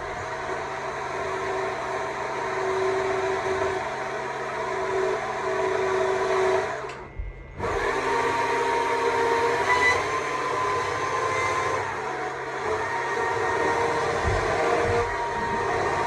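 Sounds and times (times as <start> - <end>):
battery chainsaw carving wood: 7.6 - 16.0.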